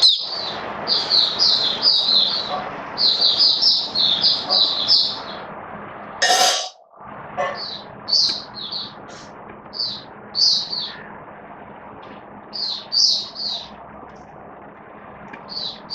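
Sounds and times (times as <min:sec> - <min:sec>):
bird chirping: 0:00.0 - 0:05.4, 0:07.6 - 0:10.9, 0:12.5 - 0:13.7, 0:15.5 - 0:15.9.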